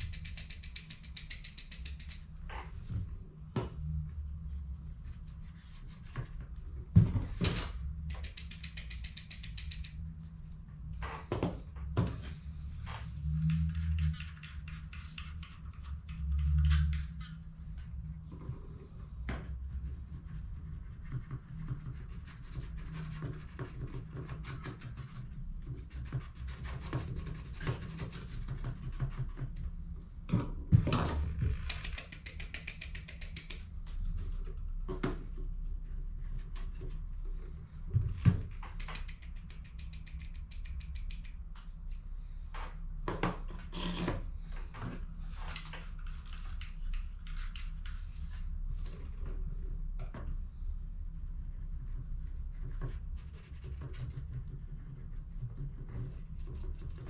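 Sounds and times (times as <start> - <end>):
low steady hum: 0.0 - 57.0
small plastic clicks: 8.0 - 10.0.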